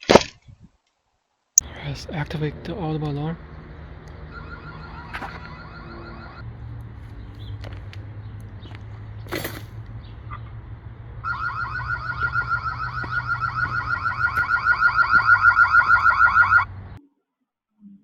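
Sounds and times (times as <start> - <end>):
steady low hum: 1.6 - 17.0
electronic warbling siren: 3.3 - 6.5, 11.2 - 17.0.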